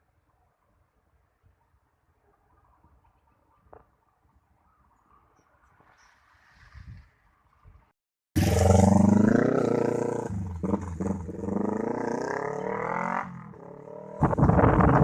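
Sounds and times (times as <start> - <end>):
wind-like rustle: 0.6 - 7.9.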